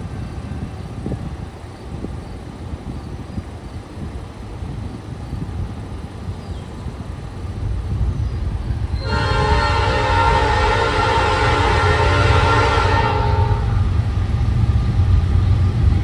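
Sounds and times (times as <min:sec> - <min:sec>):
train rumbling: 0:00.0 - 0:16.0
wind noise: 0:00.0 - 0:16.0
locomotive air horn blowing: 0:09.0 - 0:14.0.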